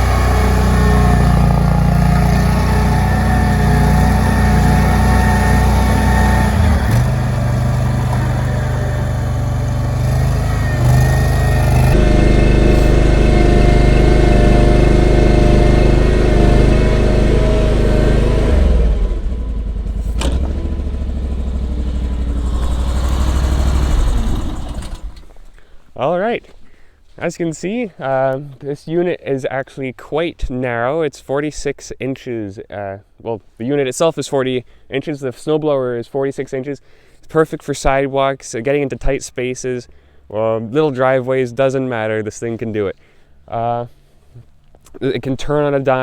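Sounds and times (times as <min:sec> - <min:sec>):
engine running at high speed: 0:00.0 - 0:25.3.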